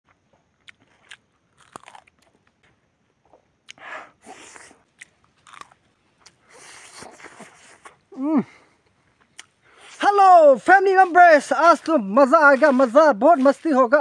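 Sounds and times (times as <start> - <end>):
man chewing food: 0.1 - 10.0.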